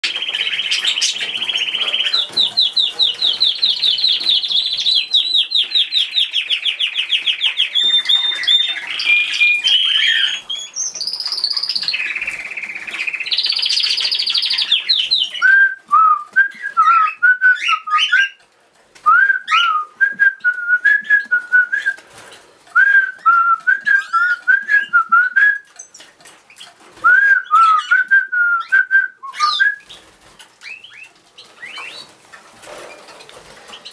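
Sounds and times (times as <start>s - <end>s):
pet birds trilling: 0.0s - 15.7s, 16.6s - 18.5s, 25.7s - 33.9s.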